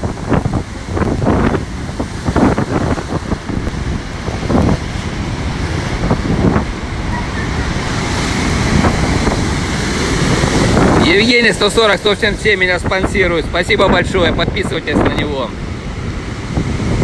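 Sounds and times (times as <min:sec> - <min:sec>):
surf breaking on shore: 0:00.0 - 0:17.0
wind buffeting microphone: 0:00.0 - 0:17.0.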